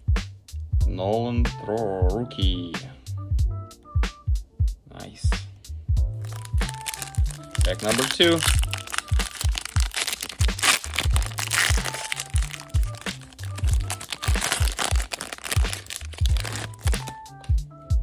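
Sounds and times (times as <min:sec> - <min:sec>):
background music with steady beat: 0:00.0 - 0:18.0
wrapper tearing and crinkling: 0:06.2 - 0:17.5.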